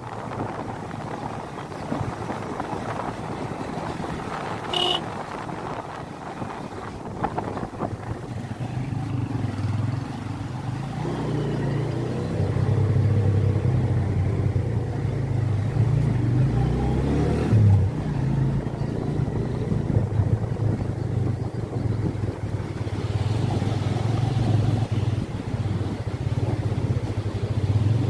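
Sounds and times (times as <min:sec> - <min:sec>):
motorcycle engine running: 0:01.1 - 0:15.8.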